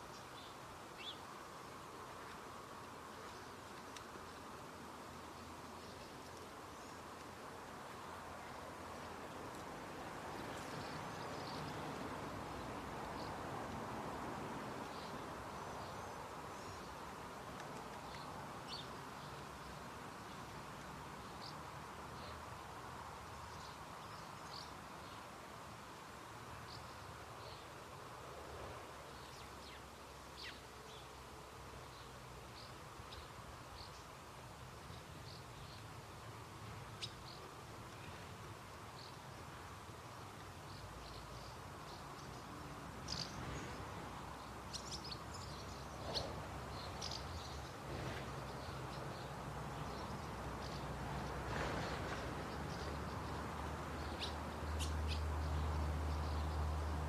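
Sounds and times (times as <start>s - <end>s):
small birds calling: 0.0s - 2.5s, 40.6s - 57.0s.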